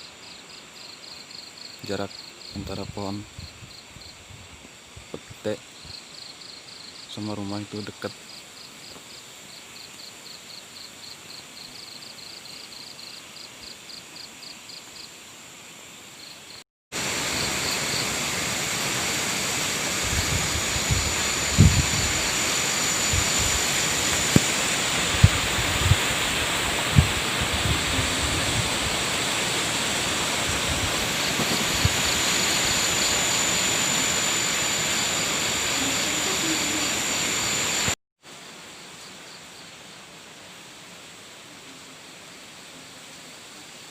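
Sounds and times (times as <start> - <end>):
crickets chirping: 0.0 - 41.2
strong wind on microphone: 2.6 - 5.2, 19.8 - 37.9
wind gusts thumping microphone: 19.8 - 33.9.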